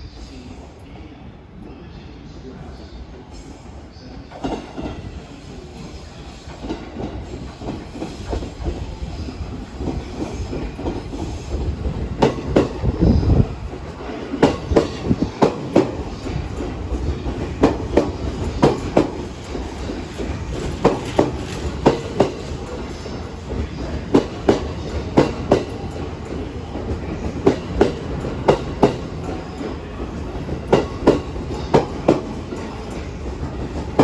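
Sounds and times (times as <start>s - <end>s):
train rumble: 0.0s - 34.0s
wheels clacking over rail joints: 9.8s - 34.0s.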